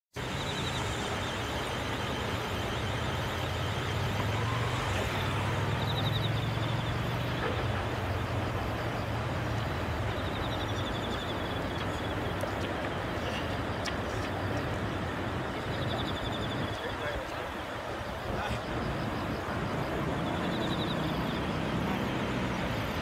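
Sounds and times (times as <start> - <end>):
even outdoor rush: 0.1 - 23.0.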